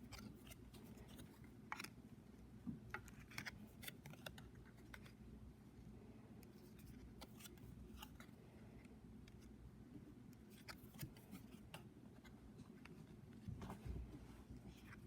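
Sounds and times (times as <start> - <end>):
cards clicking and rustling: 0.0 - 2.0, 2.9 - 5.2, 6.4 - 8.3, 10.4 - 12.9
low room hum: 0.0 - 15.0.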